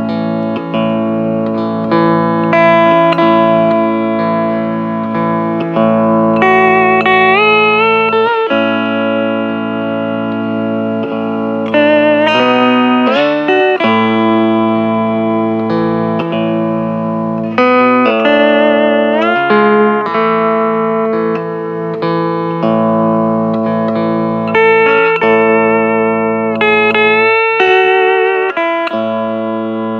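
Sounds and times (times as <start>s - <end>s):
steel guitar sliding melody: 0.0s - 29.9s.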